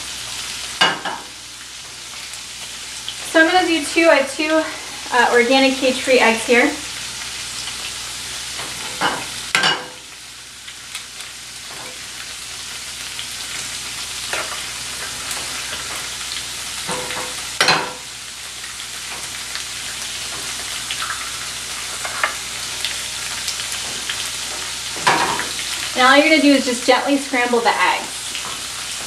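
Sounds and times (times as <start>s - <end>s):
tofu sizzling in a pan: 0.0s - 29.0s.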